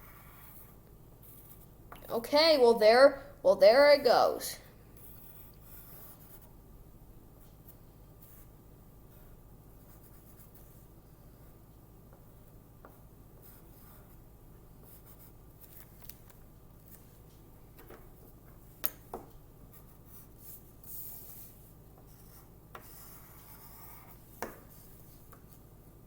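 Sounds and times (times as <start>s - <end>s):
drawing tool scratching on paper: 0.0s - 1.7s, 22.1s - 25.1s.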